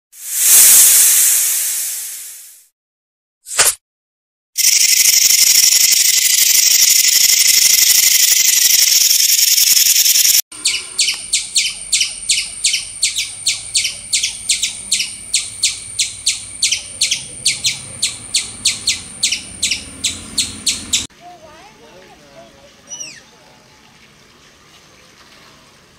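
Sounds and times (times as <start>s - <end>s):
snake hissing: 0.2s - 2.6s
thin steady high tone: 4.6s - 10.4s
squirrel alarm chirps: 4.6s - 21.1s.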